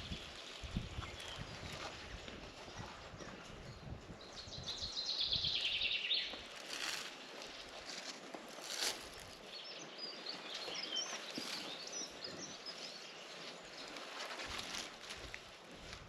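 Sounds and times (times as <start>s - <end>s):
songbird twittering: 0.9s - 6.5s, 9.4s - 14.0s
rustling: 6.3s - 9.5s, 10.6s - 16.0s.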